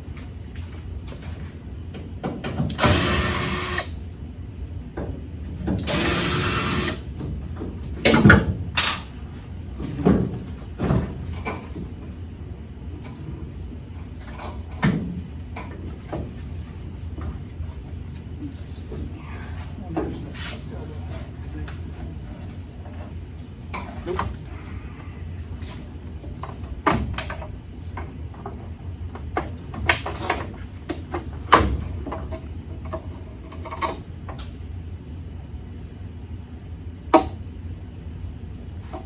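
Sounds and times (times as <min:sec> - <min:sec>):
power drill running: 0:02.8 - 0:04.0, 0:05.8 - 0:07.1
tools knocking and clanking: 0:07.2 - 0:09.1.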